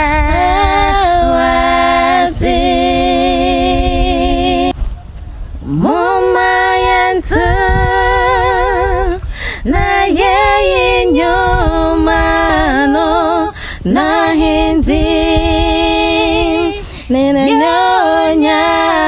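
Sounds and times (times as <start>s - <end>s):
girls singing a cappella: 0.0s - 4.8s, 5.6s - 19.0s
singer breathing: 9.2s - 9.7s, 13.5s - 13.9s, 16.8s - 17.1s.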